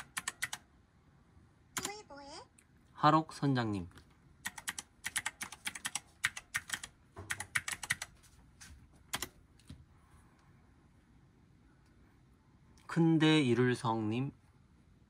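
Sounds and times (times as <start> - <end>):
typing on keyboard: 0.0 - 0.6, 4.4 - 8.1, 9.1 - 9.4.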